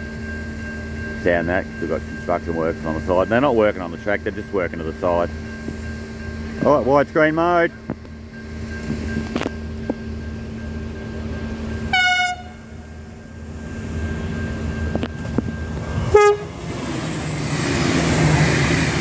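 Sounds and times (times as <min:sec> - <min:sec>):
train rushing past: 0:01.2 - 0:19.0
train horn blasts: 0:11.9 - 0:12.8, 0:16.0 - 0:16.6.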